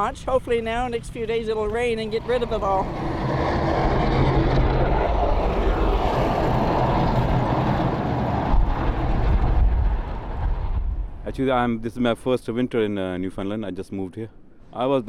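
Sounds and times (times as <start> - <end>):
engine running with loud rushing: 1.8 - 11.2.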